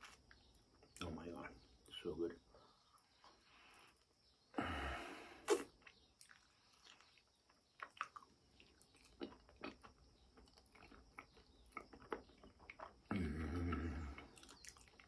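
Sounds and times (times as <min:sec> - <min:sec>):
mouth eating sounds: 0:04.6 - 0:15.0.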